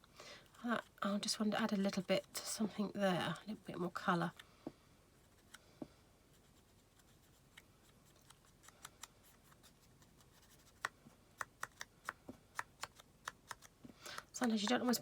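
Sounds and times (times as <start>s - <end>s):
cotton bud tapping on card: 10.6s - 14.8s.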